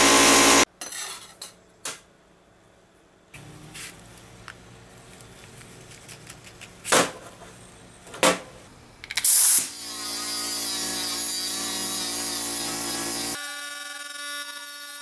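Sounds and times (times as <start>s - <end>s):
electric power tool whining: 0.0s - 0.6s.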